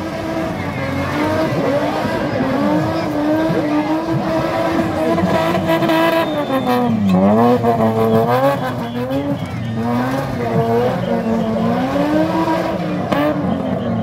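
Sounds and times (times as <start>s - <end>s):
car engine at high revs: 0.0s - 14.0s.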